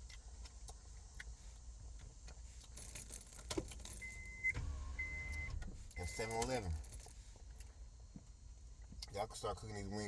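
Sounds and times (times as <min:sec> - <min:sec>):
car engine hum: 0:03.5 - 0:08.3.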